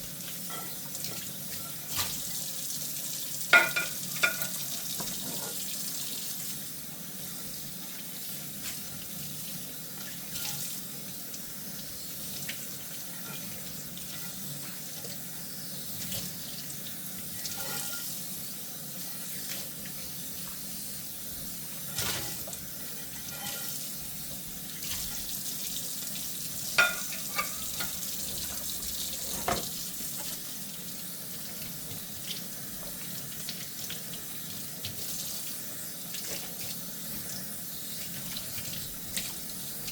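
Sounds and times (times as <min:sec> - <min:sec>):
tap running into sink: 0:03.5 - 0:05.7, 0:26.7 - 0:30.4
dishware clinking and knocking: 0:03.6 - 0:04.6, 0:26.8 - 0:27.9.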